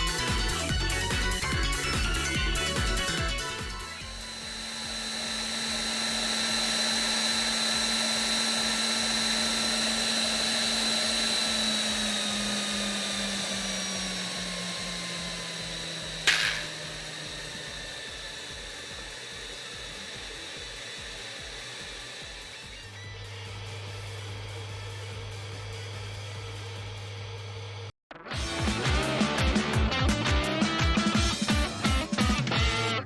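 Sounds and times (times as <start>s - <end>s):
handheld fan whining: 0.0s - 32.8s
sharp click: 16.2s - 16.9s.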